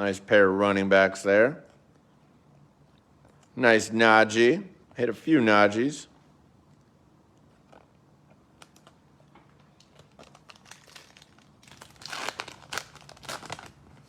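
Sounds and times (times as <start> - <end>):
foil wrapper crinkling and tearing: 9.6 - 14.0.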